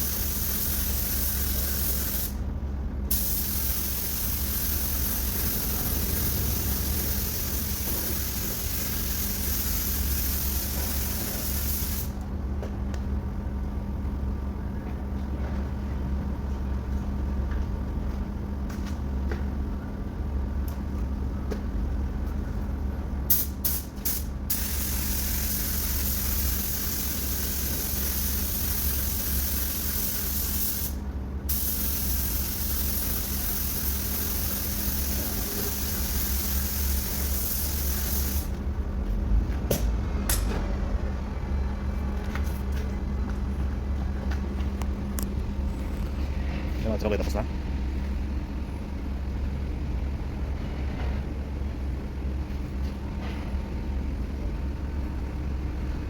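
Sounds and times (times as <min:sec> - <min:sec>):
spray gun spraying paint: 0:00.0 - 0:02.4, 0:03.1 - 0:12.1, 0:23.3 - 0:38.5
steady low hum: 0:00.0 - 0:56.0.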